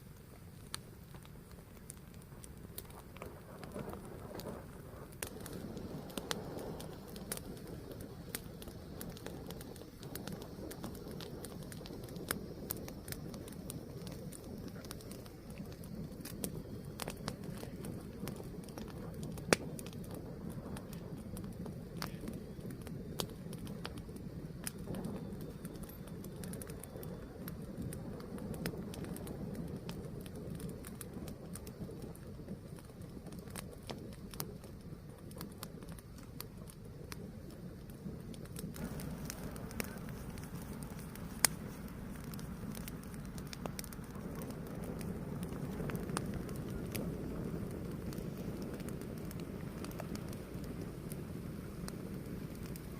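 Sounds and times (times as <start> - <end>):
fire crackling: 0.0 - 52.9
fire rumbling and hissing: 0.0 - 52.9
sharp pops: 38.6 - 44.5.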